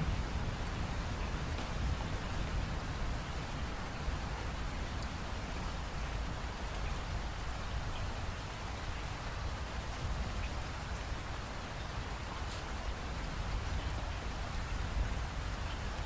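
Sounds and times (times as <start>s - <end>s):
steady rain falling: 0.0s - 16.0s
faint raindrop ticks: 1.1s - 2.8s, 4.3s - 9.2s, 9.8s - 10.8s.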